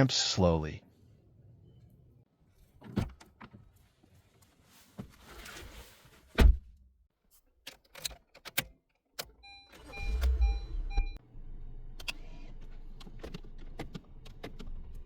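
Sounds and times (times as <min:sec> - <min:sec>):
car electronic chime beeping: 0:09.4 - 0:11.2.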